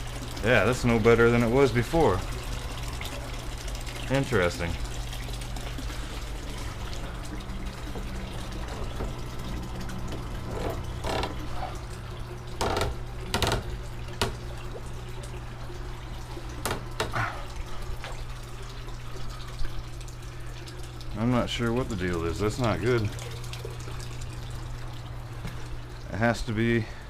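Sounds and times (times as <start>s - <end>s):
sump pump humming: 0.0s - 27.0s
water pouring weakly: 0.0s - 27.0s
sharp knocks and clicks: 12.6s - 14.5s, 16.6s - 17.2s.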